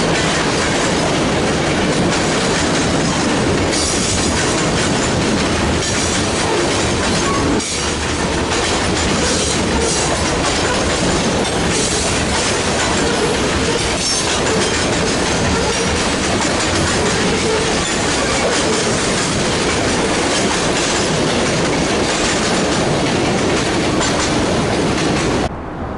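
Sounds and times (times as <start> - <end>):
train wheels clacking over rail joints: 0.0 - 25.5.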